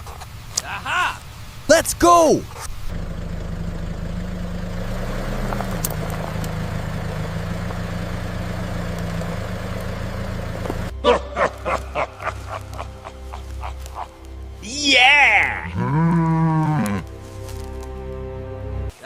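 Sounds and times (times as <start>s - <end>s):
vehicle engine humming: 0.0s - 18.9s.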